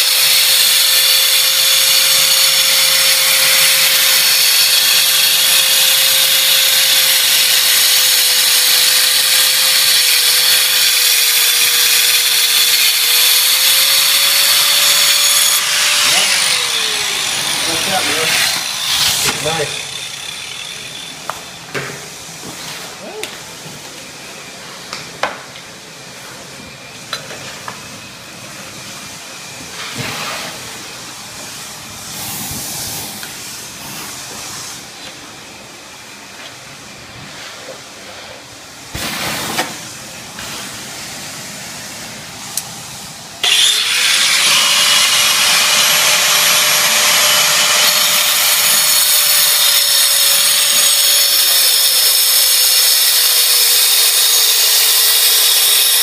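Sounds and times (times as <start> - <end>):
power saw cutting stone: 0.0 - 21.6, 43.4 - 56.0.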